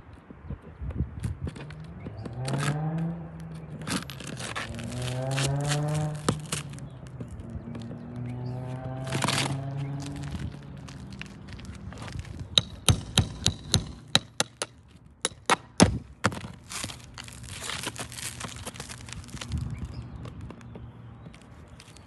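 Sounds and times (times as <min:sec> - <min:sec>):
sharp taps and cracks: 0:00.9 - 0:08.3, 0:09.1 - 0:19.6, 0:20.2 - 0:22.0
tool scraping shingle: 0:01.6 - 0:08.0, 0:08.8 - 0:19.7.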